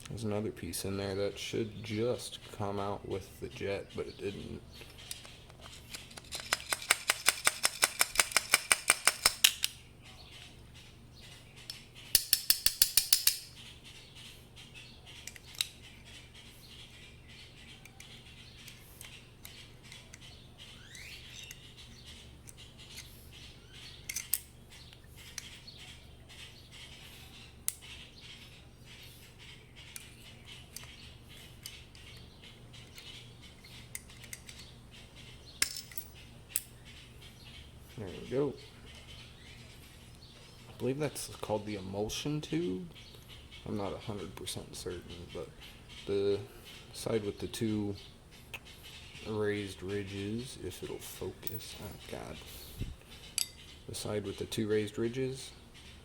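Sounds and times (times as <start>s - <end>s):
small metal parts clicking: 4.9s - 9.8s, 11.7s - 13.5s, 15.2s - 15.8s, 24.0s - 24.5s, 30.7s - 34.7s, 35.6s - 36.7s.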